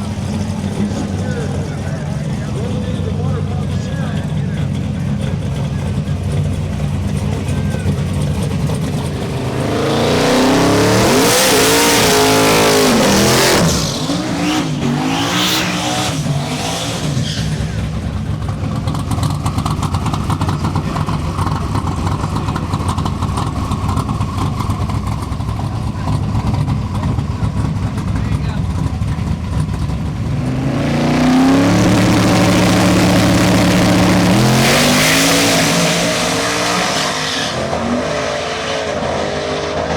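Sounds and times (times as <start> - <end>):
low engine rumble: 0.0 - 11.2, 17.1 - 34.6
drag racing engine revving: 0.0 - 39.9.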